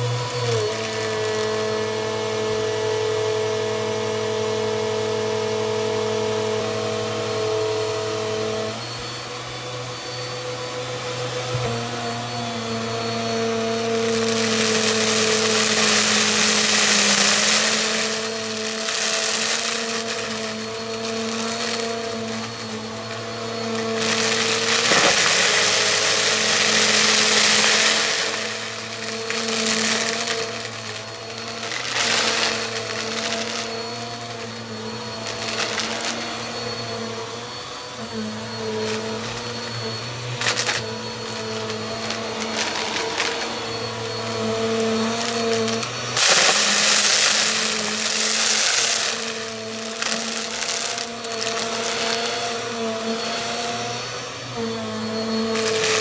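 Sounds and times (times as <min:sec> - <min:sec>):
vacuum cleaner running: 0:00.0 - 0:56.0
clicks and crackles: 0:13.3 - 0:36.6, 0:38.8 - 0:54.0, 0:55.5 - 0:56.0.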